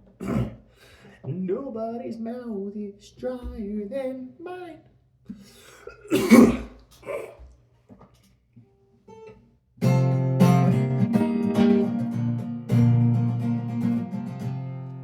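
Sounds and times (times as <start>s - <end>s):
person clearing throat: 0.1s - 0.7s, 5.3s - 7.5s
acoustic guitar strummed: 9.8s - 15.0s.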